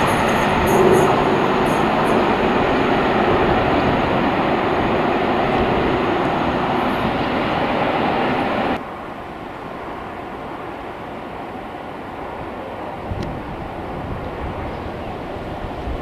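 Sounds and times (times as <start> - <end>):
train passing rumble: 0.0 - 16.0.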